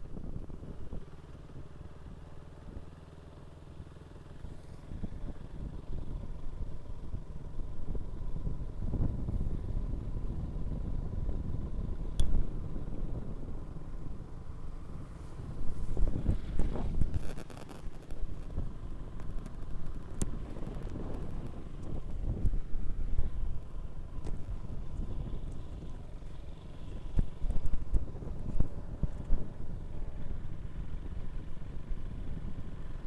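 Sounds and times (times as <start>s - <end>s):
motorcycle engine running: 0.0s - 33.0s
sharp click: 12.2s - 12.4s.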